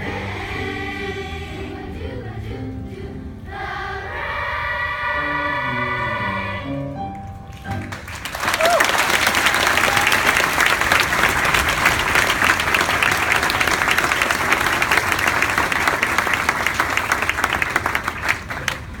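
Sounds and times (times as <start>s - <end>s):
audience applauding: 7.5s - 19.0s.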